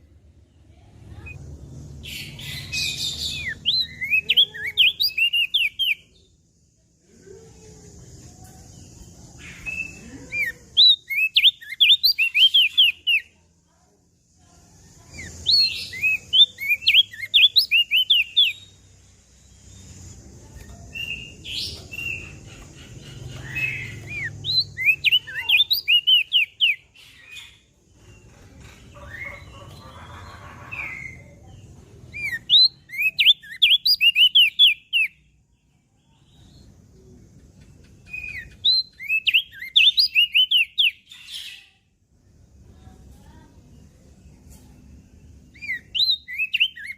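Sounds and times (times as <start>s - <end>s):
bird singing whistled notes: 2.1s - 6.1s, 9.5s - 13.3s, 15.4s - 18.8s, 23.5s - 26.8s, 32.1s - 35.2s, 38.0s - 41.1s, 45.5s - 46.9s.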